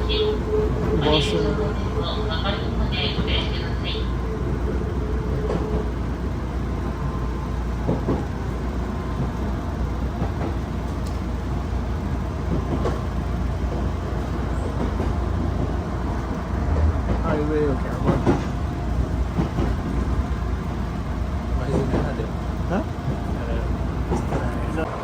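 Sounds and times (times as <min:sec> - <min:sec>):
train rumbling inside carriage: 0:00.0 - 0:25.0
faint clicks: 0:10.9 - 0:11.2.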